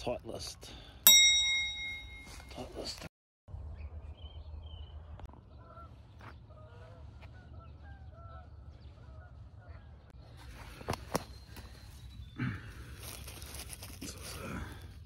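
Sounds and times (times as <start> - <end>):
faint bird calls: 5.3 - 13.7.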